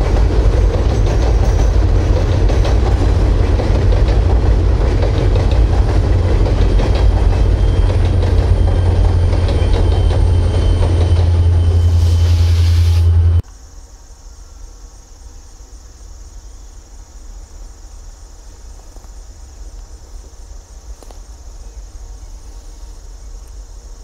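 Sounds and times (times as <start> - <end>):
train rumbling past: 0.0 - 13.8.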